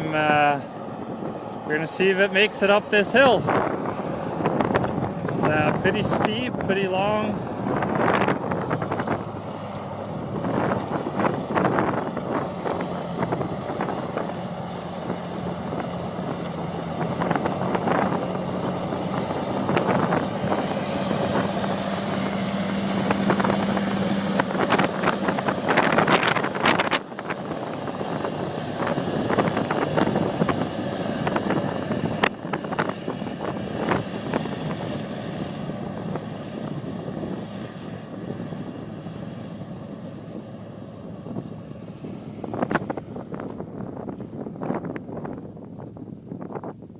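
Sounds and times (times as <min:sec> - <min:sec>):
tractor engine pulling hard: 0:00.0 - 0:46.9.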